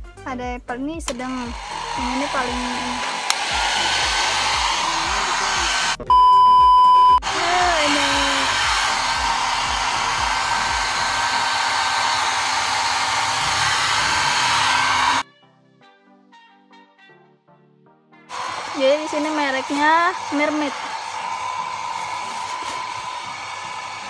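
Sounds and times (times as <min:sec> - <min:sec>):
hair dryer whirring: 0:01.1 - 0:06.0, 0:07.2 - 0:15.2, 0:18.3 - 0:24.0
steady beep tone: 0:06.0 - 0:07.2.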